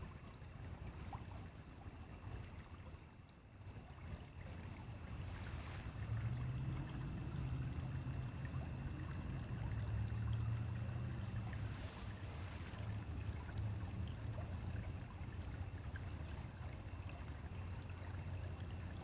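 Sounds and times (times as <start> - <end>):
stream water rushing: 4.9 - 14.7.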